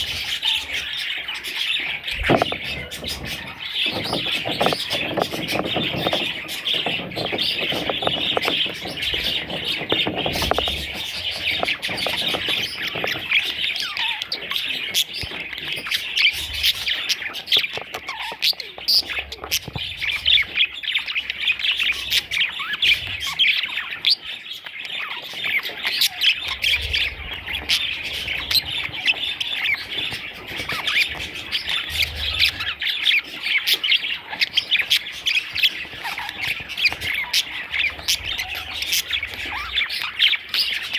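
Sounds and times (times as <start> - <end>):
budgerigars chirping and squawking: 0.0 - 40.9.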